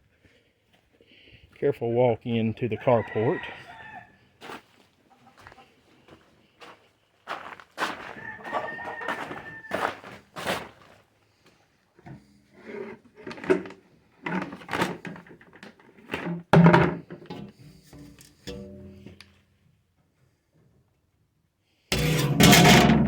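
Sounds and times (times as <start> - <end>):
containers knocking and scraping: 12.7 - 19.2, 21.9 - 23.0.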